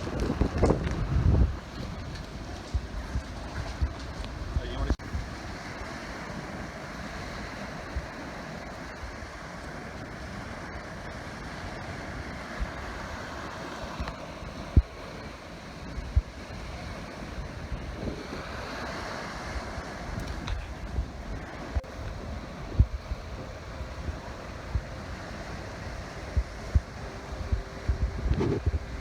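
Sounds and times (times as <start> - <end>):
wind rumbling on microphone: 0.0 - 29.0
short low thumps: 26.4 - 29.0.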